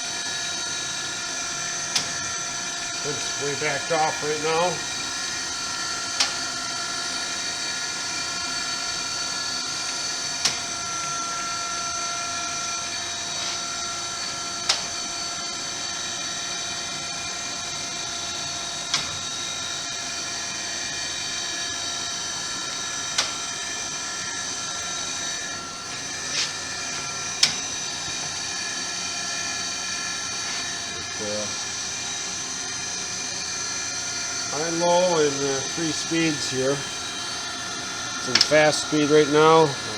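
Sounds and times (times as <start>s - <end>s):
grinder motor whine: 0.0s - 39.9s.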